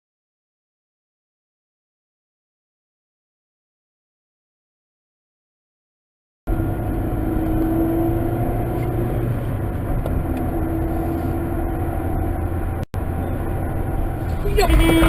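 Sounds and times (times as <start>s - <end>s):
car engine and road noise: 6.5s - 15.0s.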